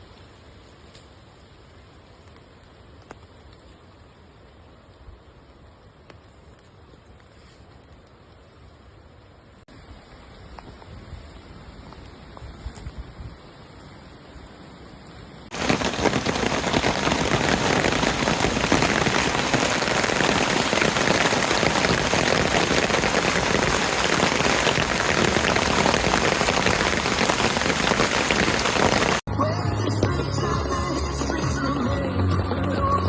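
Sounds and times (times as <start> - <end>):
heavy rain: 15.4 - 29.3.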